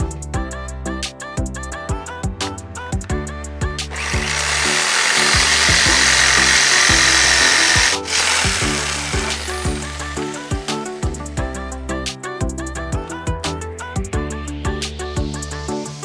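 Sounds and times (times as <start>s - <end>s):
background music: 0.0s - 16.0s
power tool cutting wood: 3.9s - 11.0s.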